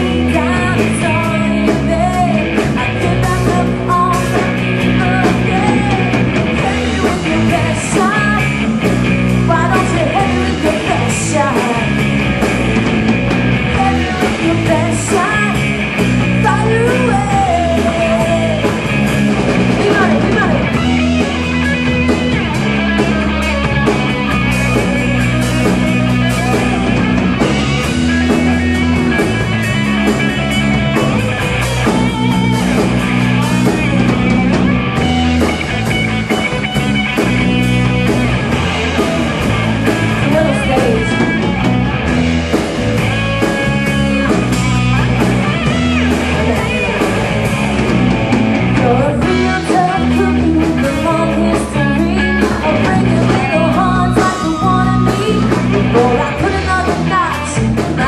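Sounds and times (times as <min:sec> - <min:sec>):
person singing: 0:00.0 - 0:08.8, 0:09.5 - 0:12.1, 0:13.7 - 0:19.1, 0:46.0 - 0:47.2, 0:48.6 - 0:58.0
live rock band playing: 0:00.0 - 0:58.0.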